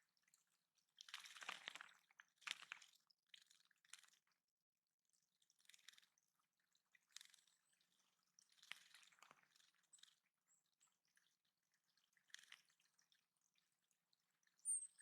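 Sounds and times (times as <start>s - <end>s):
water splashing and dripping: 1.0s - 4.2s, 7.0s - 10.2s, 11.1s - 13.7s.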